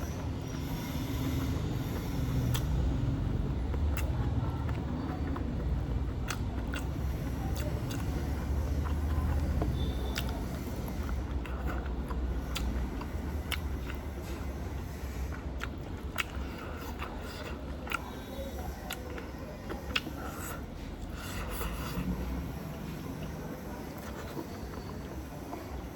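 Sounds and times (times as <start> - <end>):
person chewing food: 0.0 - 25.9
wet mouth clicks: 2.3 - 14.4, 15.6 - 22.4.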